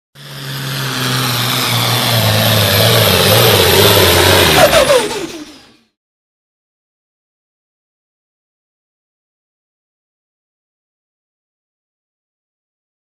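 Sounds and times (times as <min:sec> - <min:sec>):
loud rushing exhaust: 0:00.2 - 0:05.9
tractor diesel engine running hard: 0:00.2 - 0:06.0.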